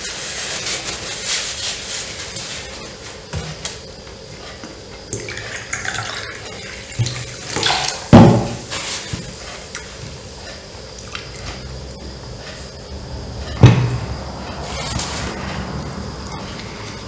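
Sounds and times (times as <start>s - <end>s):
loud thump: 8.1s - 8.6s, 13.6s - 14.1s.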